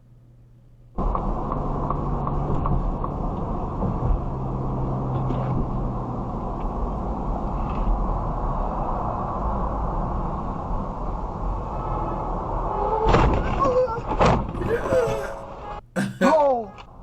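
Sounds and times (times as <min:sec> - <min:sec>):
truck engine and road noise: 0:01.0 - 0:17.0.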